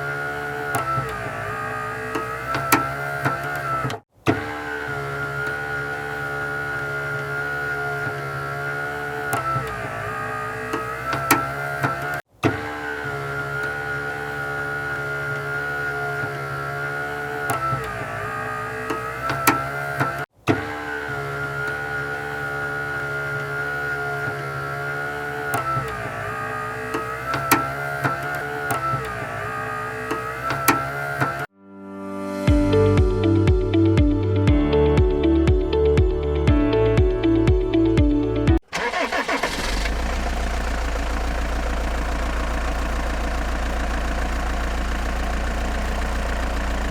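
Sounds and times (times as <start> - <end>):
motor whining: 0.0 - 31.5, 38.6 - 46.9
sharp clicks: 24.2 - 31.5.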